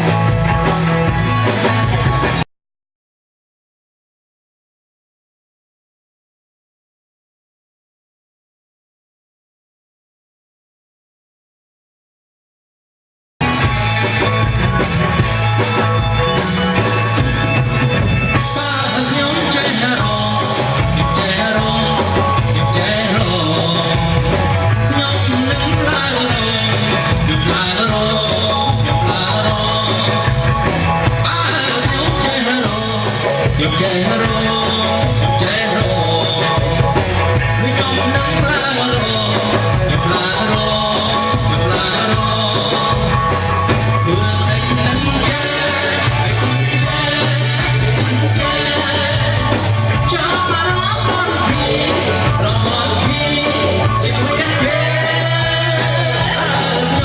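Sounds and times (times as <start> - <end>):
rock band music: 0.0 - 2.5, 13.4 - 57.0
person singing: 18.3 - 57.0.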